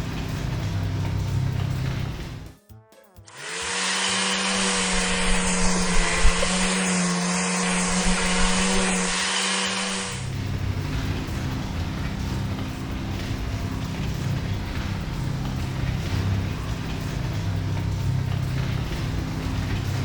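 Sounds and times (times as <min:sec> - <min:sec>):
motor hum: 0:00.0 - 0:02.6, 0:03.3 - 0:20.0
loud hiss: 0:03.3 - 0:15.8.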